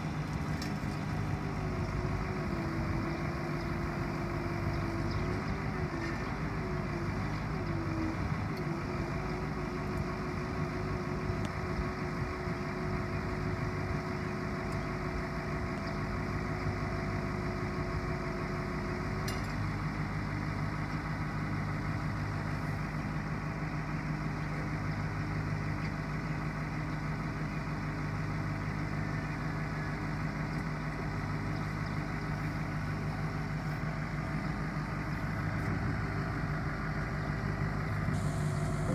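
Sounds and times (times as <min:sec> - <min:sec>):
truck engine idling: 0:00.0 - 0:38.9
high steady whine: 0:37.4 - 0:38.9.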